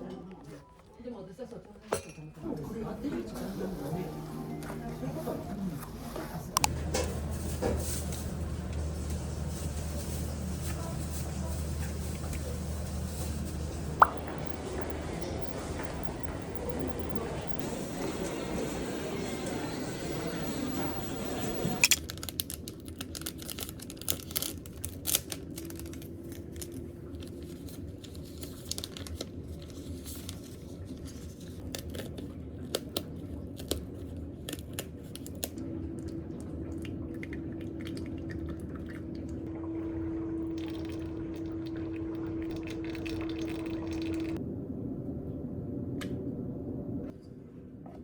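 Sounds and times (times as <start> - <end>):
faint steady hum: 4.0 - 22.0
paper rustling: 6.0 - 14.0.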